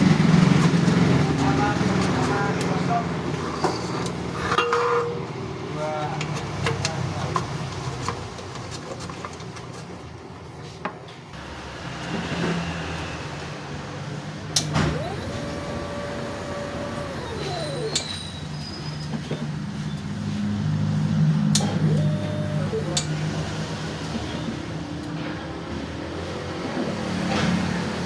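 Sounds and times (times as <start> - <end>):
machine motor whirring: 14.6 - 18.6, 21.6 - 23.7.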